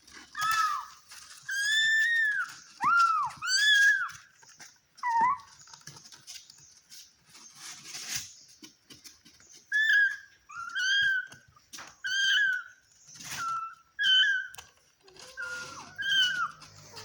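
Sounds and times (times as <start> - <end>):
cat meowing: 14.0 - 17.0.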